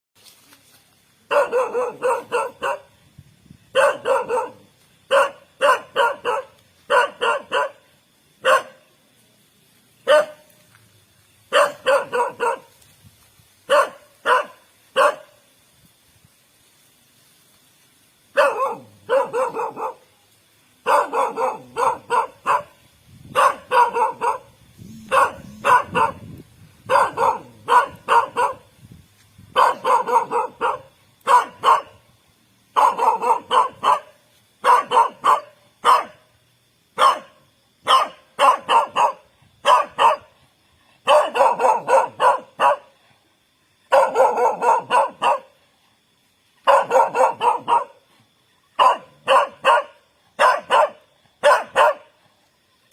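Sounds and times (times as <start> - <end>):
dog barking: 1.3 - 3.0, 3.7 - 7.8, 8.4 - 8.9, 10.0 - 10.5, 11.5 - 12.8, 13.7 - 15.4, 18.3 - 20.1, 20.8 - 28.7, 29.5 - 32.0, 32.7 - 36.2, 37.0 - 40.3, 41.0 - 43.0, 43.9 - 45.6, 46.6 - 48.0, 48.8 - 52.2.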